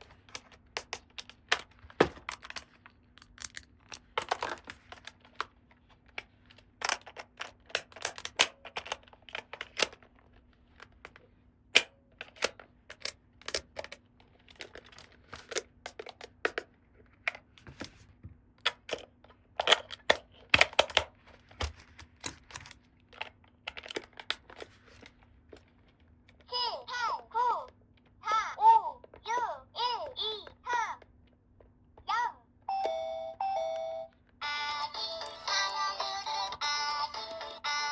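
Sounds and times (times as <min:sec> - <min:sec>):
plastic toy pieces clicking: 0:00.0 - 0:05.5, 0:06.1 - 0:10.1, 0:11.8 - 0:16.7, 0:22.1 - 0:24.6.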